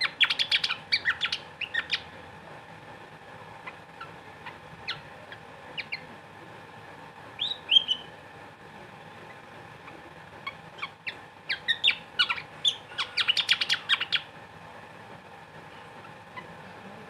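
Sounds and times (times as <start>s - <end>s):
bird chirping: 0.0s - 2.1s, 4.4s - 5.1s, 5.8s - 6.1s, 7.4s - 8.1s, 10.8s - 14.3s.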